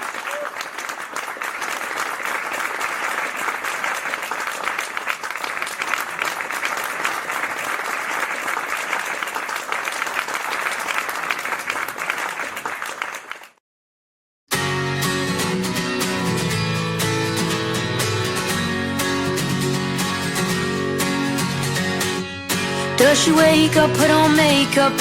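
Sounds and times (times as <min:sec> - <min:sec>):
audience applauding: 0:00.0 - 0:13.6
guitar playing: 0:14.5 - 0:25.0.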